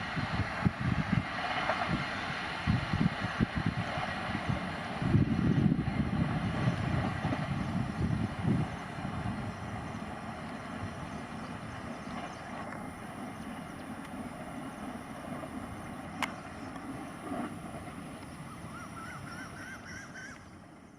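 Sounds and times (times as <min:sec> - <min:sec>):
wind on microphone: 0:00.0 - 0:19.9
train rumble: 0:00.0 - 0:20.9
faint warbling call: 0:18.5 - 0:20.4.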